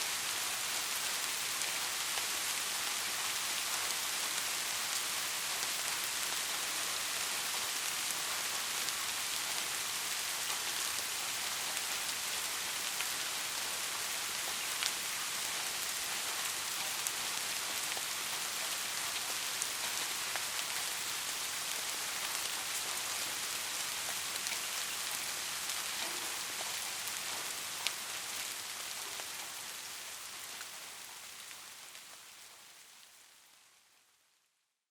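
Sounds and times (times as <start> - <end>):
steady rain falling: 0.0 - 34.6
rain drops ticking: 0.1 - 34.1.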